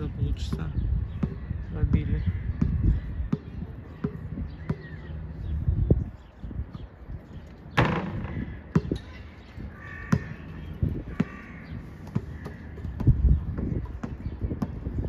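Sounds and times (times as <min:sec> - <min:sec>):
wind on microphone: 0:00.0 - 0:15.0
bird calling: 0:00.4 - 0:14.7
basketball bouncing: 0:00.5 - 0:05.1, 0:07.8 - 0:09.2, 0:10.0 - 0:15.0.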